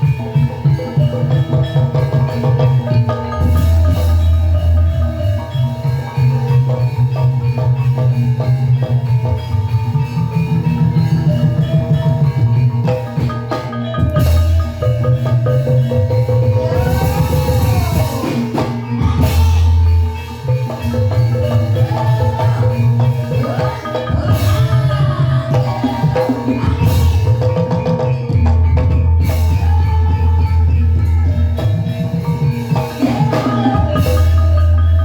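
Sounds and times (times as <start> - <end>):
hand drum beat: 0.0 - 35.0
tuned mallet percussion: 0.0 - 35.0.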